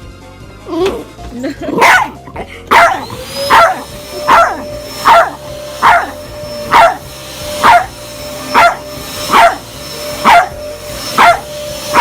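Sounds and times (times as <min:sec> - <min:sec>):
dog barking: 0:01.8 - 0:07.0, 0:07.6 - 0:09.6, 0:10.2 - 0:10.6, 0:11.2 - 0:12.0.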